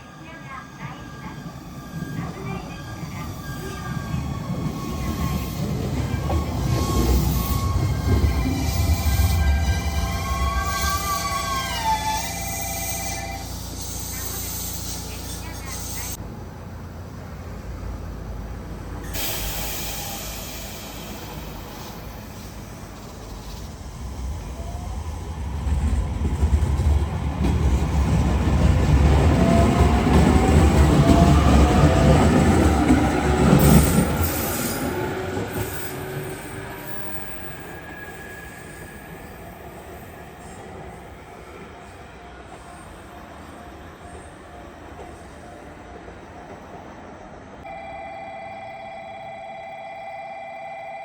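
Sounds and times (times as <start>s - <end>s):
train wheels rumbling: 0.0s - 47.4s
wheel squeal: 1.8s - 14.8s.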